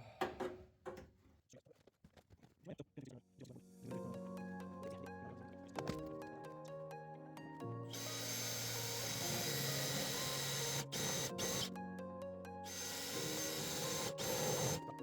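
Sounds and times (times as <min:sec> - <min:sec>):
background music: 0:03.3 - 0:15.0
cordless drill drilling into steel: 0:07.9 - 0:11.7, 0:12.7 - 0:14.9.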